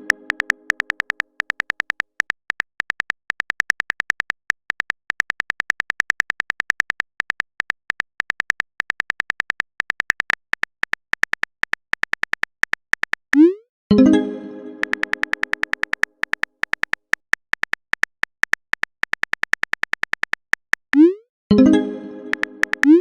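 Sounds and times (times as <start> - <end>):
keyboard typing clicks: 0.0 - 13.6, 14.8 - 21.2, 22.2 - 23.0.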